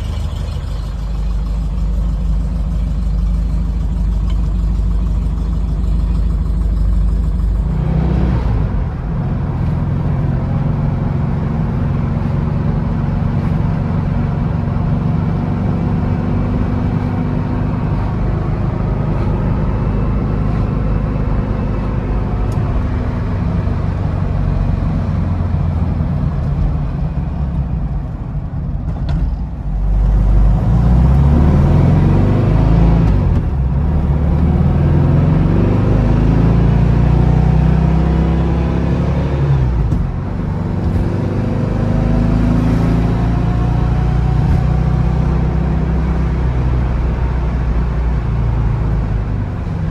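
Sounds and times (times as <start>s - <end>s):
car engine warming up: 0.0s - 49.9s.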